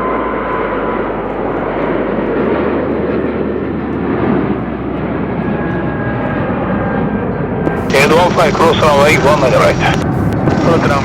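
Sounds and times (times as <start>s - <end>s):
jet engines roaring: 0.0s - 11.0s
thin whine: 5.7s - 11.0s.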